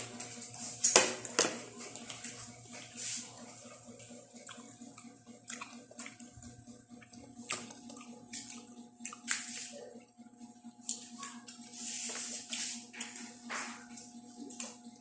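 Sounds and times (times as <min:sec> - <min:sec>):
wet chewing: 0:03.6 - 0:09.7
mouth smacks and squishes: 0:04.5 - 0:06.3, 0:07.0 - 0:09.7.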